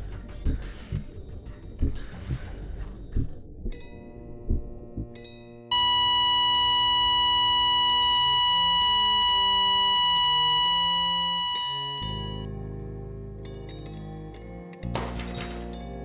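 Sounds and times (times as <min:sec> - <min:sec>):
flatline monitor beep: 0:05.7 - 0:12.5.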